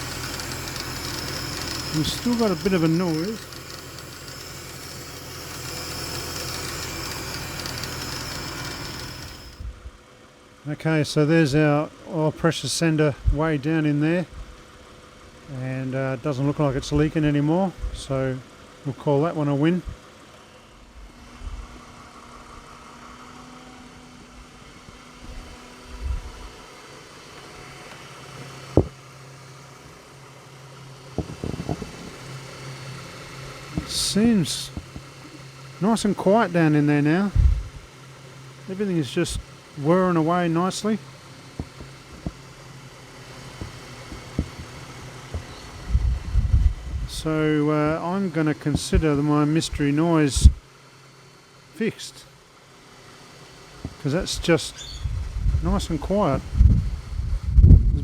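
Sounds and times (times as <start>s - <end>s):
belt-driven accessories whirring: 0.0s - 9.7s, 31.0s - 46.0s
thin high whine: 0.0s - 9.8s, 38.6s - 50.7s
car engine idling: 0.0s - 10.6s, 27.4s - 46.0s.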